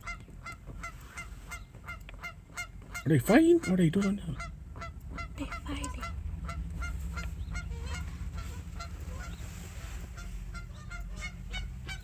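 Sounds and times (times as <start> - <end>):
geese honking: 0.0 - 12.0
steady low rumble: 0.0 - 12.0.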